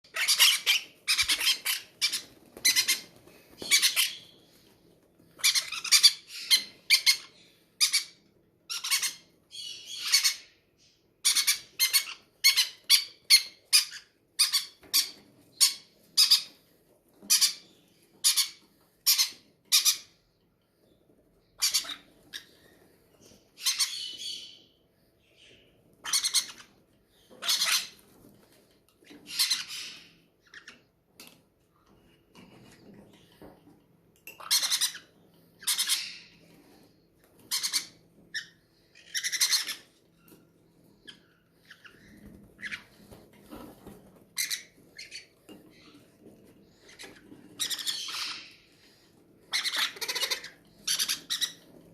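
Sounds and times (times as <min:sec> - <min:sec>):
baby parrots begging squawks: 0:00.1 - 0:04.6, 0:05.3 - 0:10.6, 0:11.2 - 0:16.6, 0:17.2 - 0:20.2, 0:21.6 - 0:24.7, 0:25.3 - 0:28.2, 0:29.0 - 0:30.8, 0:34.4 - 0:51.9.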